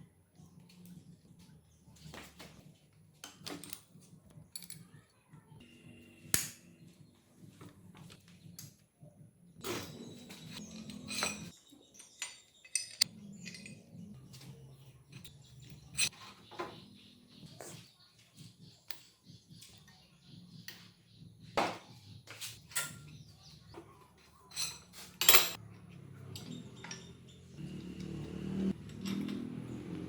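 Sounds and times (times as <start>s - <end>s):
metal tools clinking: 4.5s - 4.9s, 9.6s - 16.3s, 24.2s - 29.9s.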